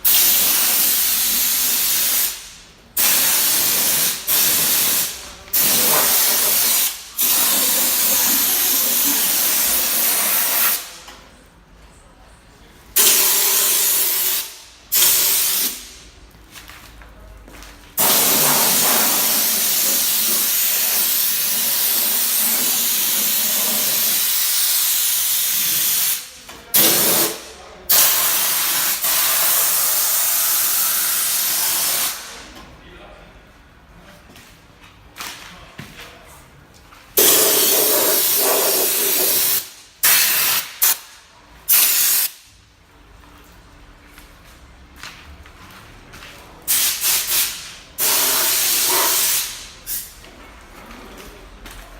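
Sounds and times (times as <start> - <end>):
compressed air hissing from nozzle: 0.1 - 11.0, 13.0 - 16.0, 18.0 - 26.2, 27.9 - 32.3, 37.2 - 41.0, 41.7 - 42.4, 46.7 - 50.1.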